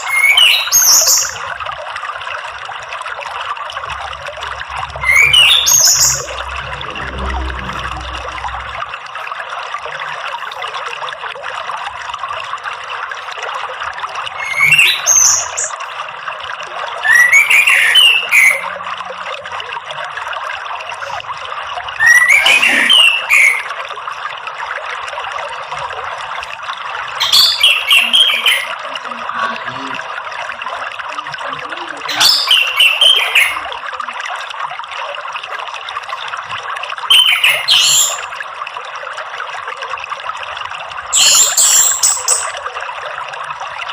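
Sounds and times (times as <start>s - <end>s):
bird singing whistled notes: 0.0s - 1.4s, 4.9s - 7.1s, 14.4s - 15.7s, 17.0s - 18.6s
running water rushing: 0.0s - 43.9s.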